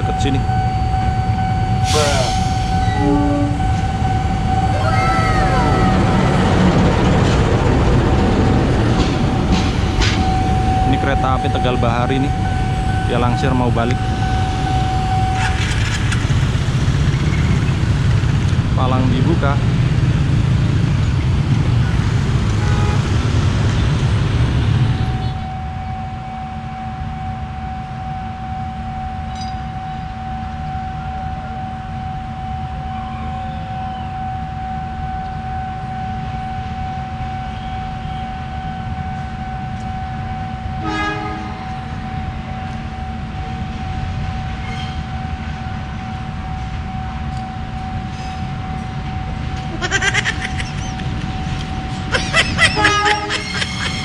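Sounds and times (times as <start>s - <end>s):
diesel train running: 0.0s - 54.0s
train horn toot: 1.8s - 3.9s, 22.6s - 23.2s, 40.7s - 42.0s, 52.4s - 54.0s.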